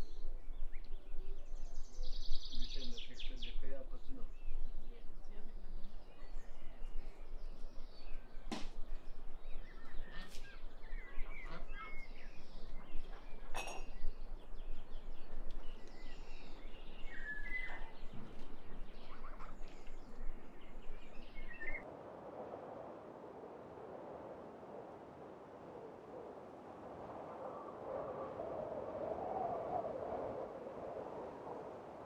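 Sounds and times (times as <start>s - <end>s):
bird chirps: 0.0s - 8.5s, 9.2s - 21.8s.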